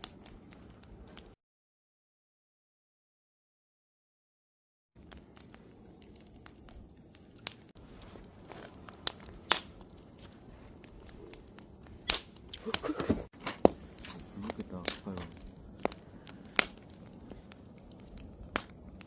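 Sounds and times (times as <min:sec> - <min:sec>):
wood fire crackling: 0:00.0 - 0:01.4, 0:05.0 - 0:19.0.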